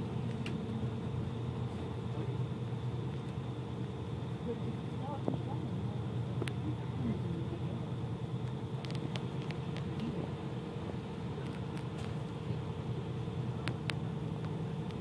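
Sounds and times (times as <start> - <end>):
train running low rumble: 0.0 - 15.0.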